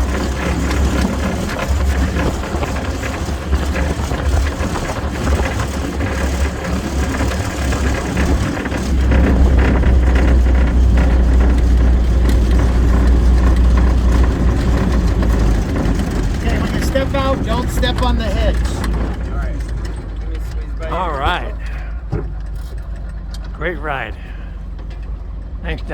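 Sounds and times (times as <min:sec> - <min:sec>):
half-track engine rumbling: 0:00.0 - 0:25.9.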